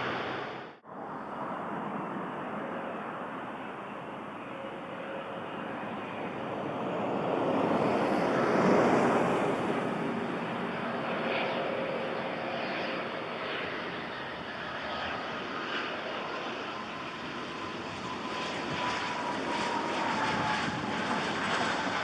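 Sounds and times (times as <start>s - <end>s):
jet aircraft passing: 0.0s - 22.0s.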